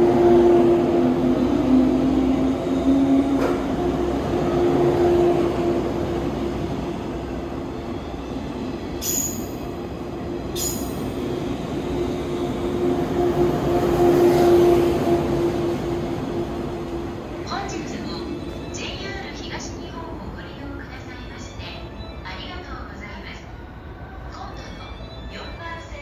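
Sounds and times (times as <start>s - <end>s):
high-pitched wheel squeal: 9.0s - 9.6s.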